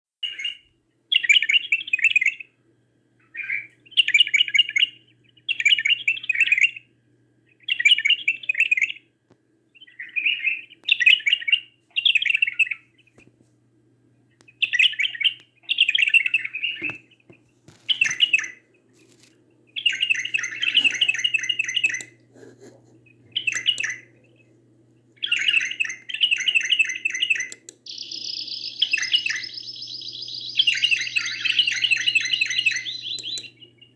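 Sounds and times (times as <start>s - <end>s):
birds warbling: 3.2s - 6.9s, 9.8s - 12.9s, 14.5s - 17.3s, 17.9s - 22.3s, 23.0s - 24.6s, 25.2s - 33.9s.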